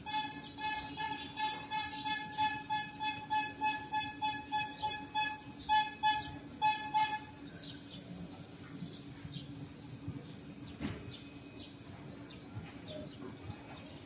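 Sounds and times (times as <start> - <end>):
repeated high notes: 0.0 - 7.4
birds chirping: 0.0 - 14.0
steady low hum: 0.0 - 14.0.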